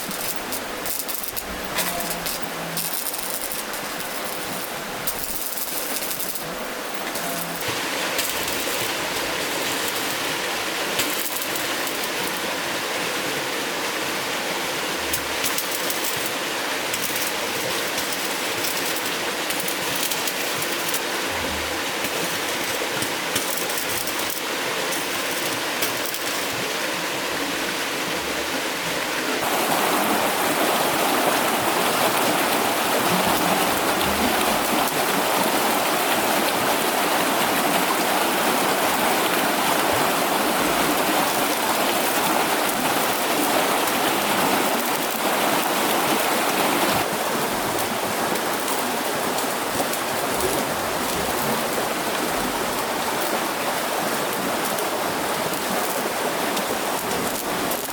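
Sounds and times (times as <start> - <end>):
rushing water: 0.0 - 57.9.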